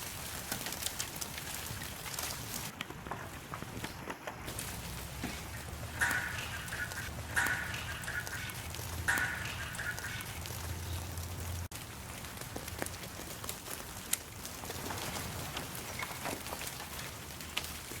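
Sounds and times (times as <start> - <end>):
rain pattering: 0.0 - 18.0
sharp water drips: 4.6 - 13.1
duck quacking: 6.0 - 10.4.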